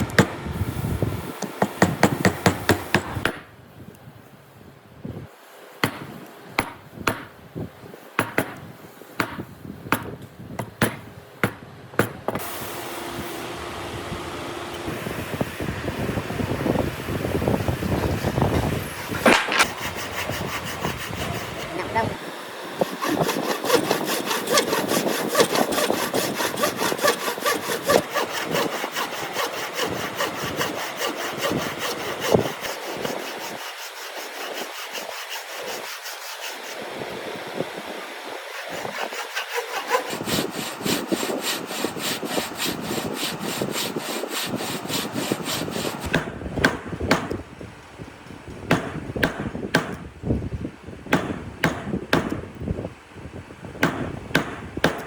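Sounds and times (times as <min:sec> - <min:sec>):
hand saw cutting wood: 0:16.7 - 0:37.1, 0:38.2 - 0:47.4
sharp knocks on wood: 0:46.1 - 0:47.4, 0:48.7 - 0:50.0, 0:51.1 - 0:52.4, 0:53.8 - 0:55.0.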